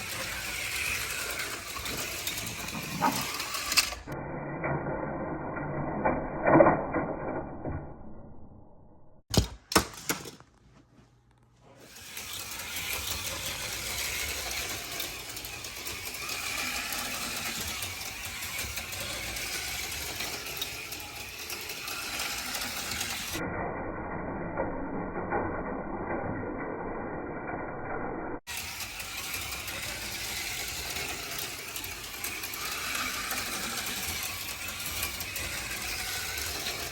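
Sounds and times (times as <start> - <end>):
mechanical rattle: 0.0 - 4.2, 11.9 - 23.4, 28.5 - 36.9
slot car motors whirring: 0.0 - 4.2, 11.9 - 23.4, 28.5 - 36.9.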